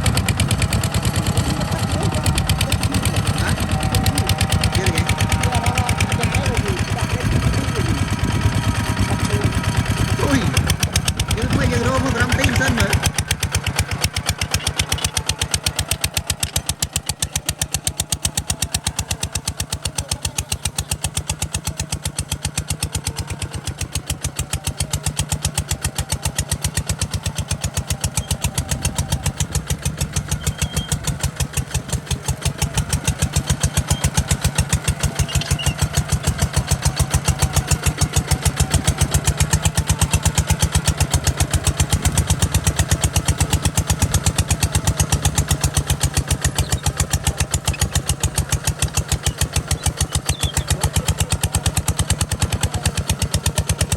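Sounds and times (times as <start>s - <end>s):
diesel engine chugging: 0.0s - 53.9s.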